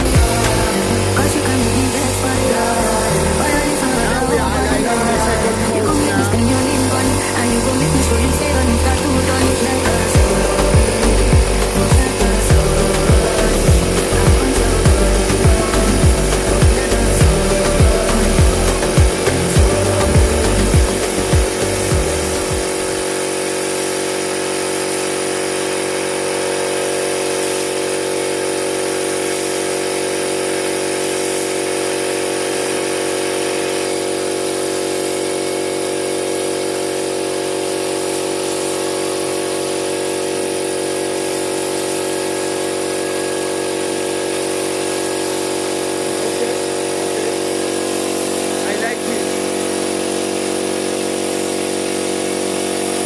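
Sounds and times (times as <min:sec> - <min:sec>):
motor droning: 0:00.0 - 0:23.6.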